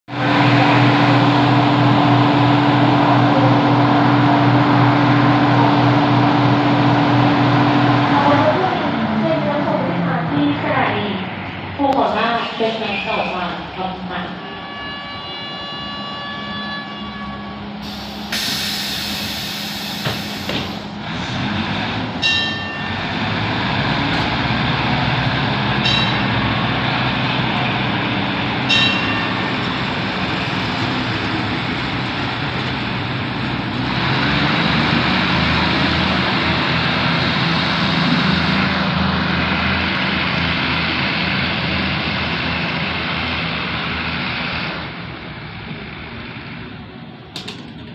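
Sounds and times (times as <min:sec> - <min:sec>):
train engine drone: 0:00.1 - 0:47.9
air brakes hissing: 0:17.8 - 0:21.0
train wheels rolling over rails: 0:17.8 - 0:44.2, 0:47.2 - 0:47.9.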